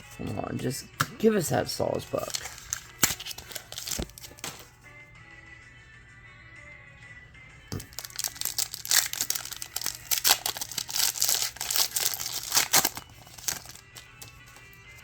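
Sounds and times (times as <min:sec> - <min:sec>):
foil wrapper crinkling and tearing: 0:02.2 - 0:04.6, 0:07.8 - 0:14.6.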